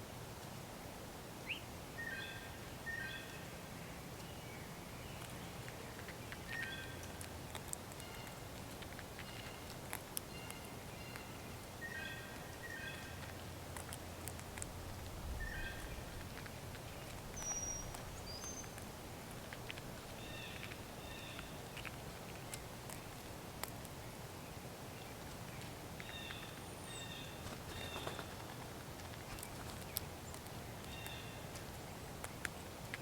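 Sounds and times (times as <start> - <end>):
faint steady hiss: 0.0 - 33.0
birds chirping: 9.1 - 13.3, 15.4 - 21.8.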